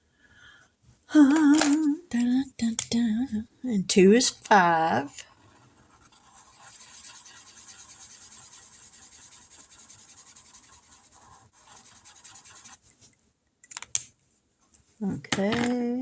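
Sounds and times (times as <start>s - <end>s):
marker scratching on paper: 4.6s - 13.0s.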